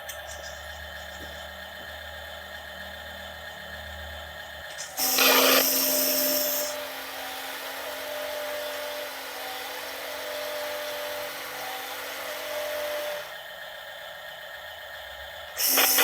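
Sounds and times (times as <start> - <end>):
toy truck motor whirring: 4.6 - 13.4, 15.5 - 16.0.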